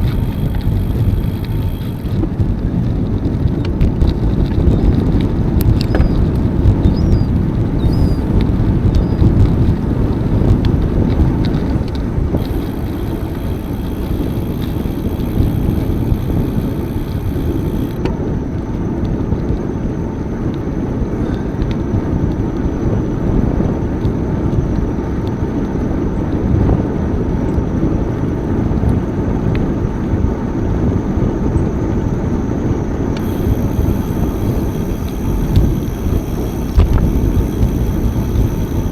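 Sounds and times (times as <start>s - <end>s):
bicycle tyre noise: 0.0s - 19.2s, 33.0s - 38.9s
wind buffeting microphone: 0.0s - 19.8s, 20.4s - 38.9s
short high chirps: 7.0s - 8.4s.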